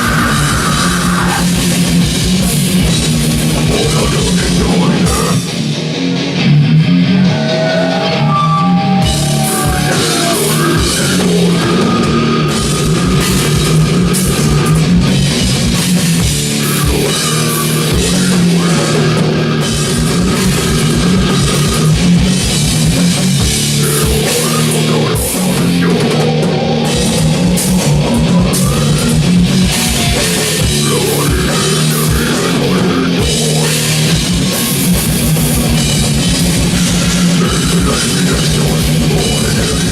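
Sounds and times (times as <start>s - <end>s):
rapid drumming: 0.0s - 6.1s, 8.9s - 39.9s
distorted electric guitars: 0.0s - 39.9s.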